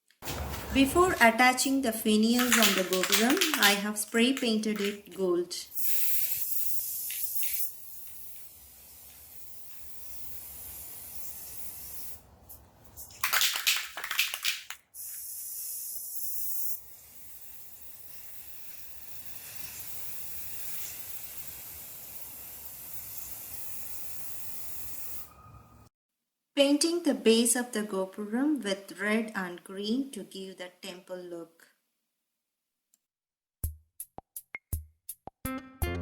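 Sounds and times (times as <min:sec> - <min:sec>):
aerosol spray can hissing: 0:02.2 - 0:25.3.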